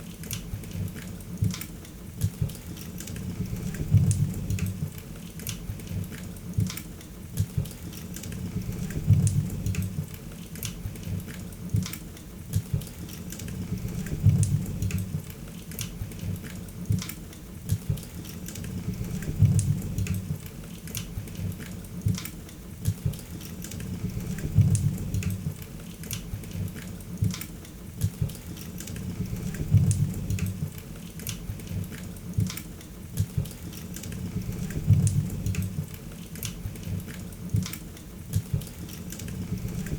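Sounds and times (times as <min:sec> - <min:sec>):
low rumble of flames: 0:03.2 - 0:05.0, 0:08.4 - 0:10.2, 0:13.5 - 0:15.3, 0:18.6 - 0:20.5, 0:23.8 - 0:25.6, 0:29.0 - 0:30.8, 0:34.1 - 0:36.0.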